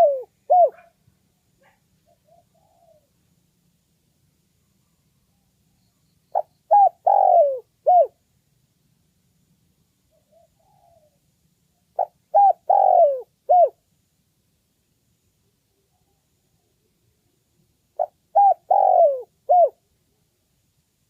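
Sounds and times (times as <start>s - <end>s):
dove cooing: 0.0s - 1.0s, 1.6s - 3.2s, 6.3s - 8.2s, 10.1s - 11.2s, 11.9s - 13.8s, 18.0s - 19.8s.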